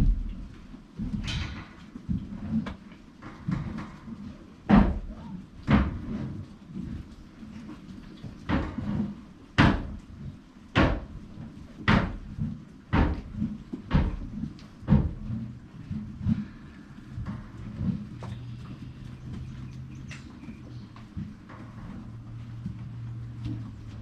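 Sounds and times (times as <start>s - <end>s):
loud sharp knocks: 9.6s - 10.0s, 10.7s - 11.1s, 11.8s - 12.3s, 12.9s - 13.3s.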